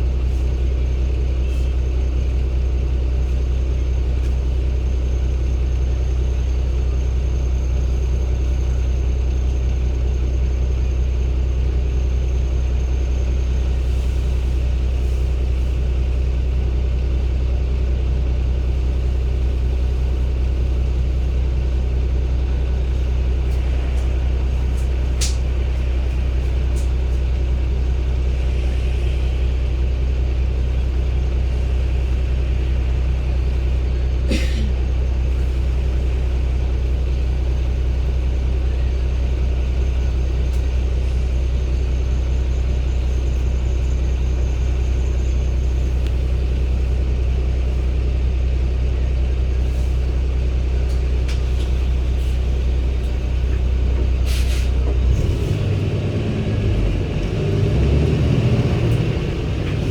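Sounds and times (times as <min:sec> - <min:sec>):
diesel bus engine droning: 0:00.0 - 0:59.9.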